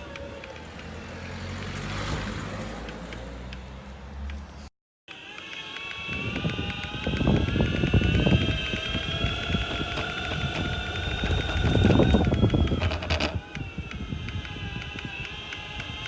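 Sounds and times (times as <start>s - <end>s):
repeated clicking: 0.0s - 1.9s, 2.6s - 16.0s
electric motor whine: 5.1s - 16.0s
wheel rumble: 6.0s - 16.0s.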